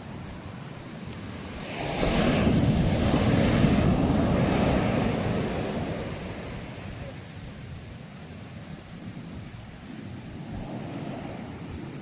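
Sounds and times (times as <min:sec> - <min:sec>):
ocean wave breaking: 0:00.0 - 0:07.6.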